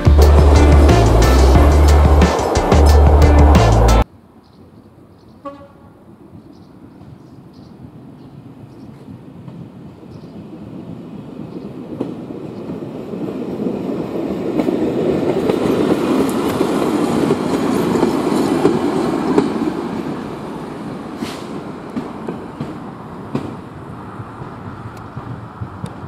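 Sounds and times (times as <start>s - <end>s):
train wheels clattering on rails: 11.4s - 20.4s, 21.1s - 26.0s.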